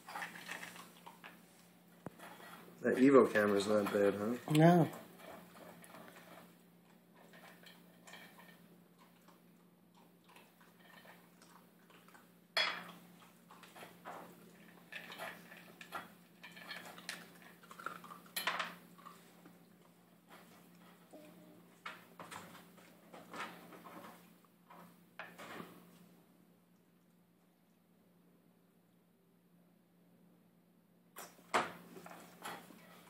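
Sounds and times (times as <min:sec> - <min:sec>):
puppy eating kibble from bowl: 0:00.0 - 0:01.4, 0:12.9 - 0:21.1.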